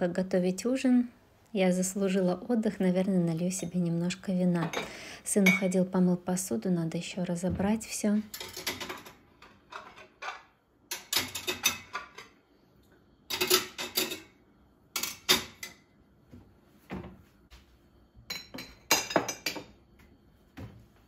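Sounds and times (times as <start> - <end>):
dishes and cutlery clinking: 8.3 - 12.4, 13.3 - 14.4, 15.0 - 15.9, 18.3 - 19.8.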